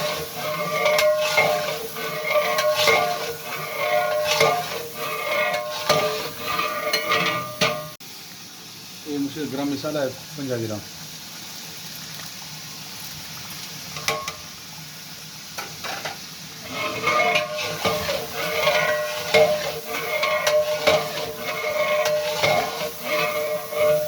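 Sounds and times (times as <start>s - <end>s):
metal ladle scraping pot: 0.0s - 8.0s, 15.8s - 24.0s
metallic squeal: 0.0s - 8.0s, 16.6s - 24.0s
chicken sizzling: 0.0s - 24.0s.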